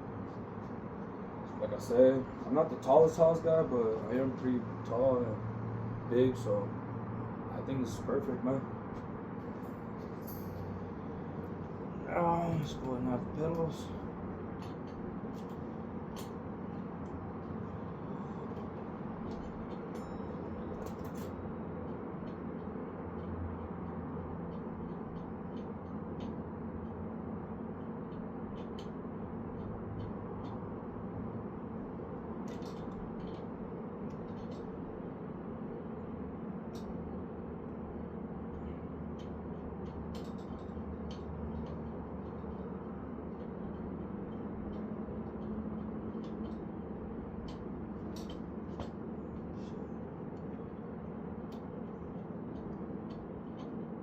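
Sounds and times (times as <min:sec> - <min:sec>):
low hum: 0:00.0 - 0:54.0
metal parts clicking: 0:32.5 - 0:33.4, 0:40.1 - 0:42.6, 0:47.4 - 0:49.7.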